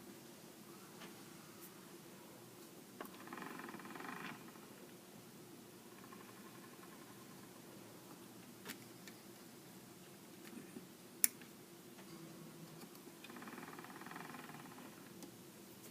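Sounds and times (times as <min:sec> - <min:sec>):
faint buzzing: 0:00.0 - 0:15.9
low steady hum: 0:00.0 - 0:15.9.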